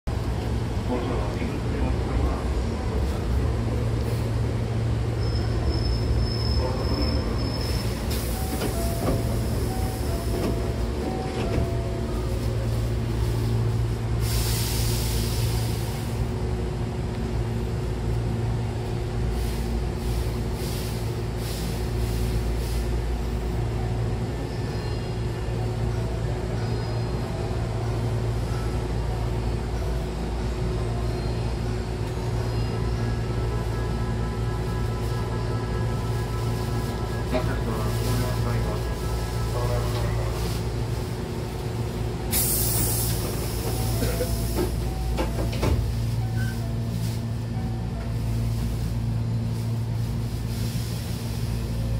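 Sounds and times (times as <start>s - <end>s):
train equipment humming: 0.1s - 51.9s
compressed air hiss: 14.2s - 15.9s, 42.3s - 44.6s.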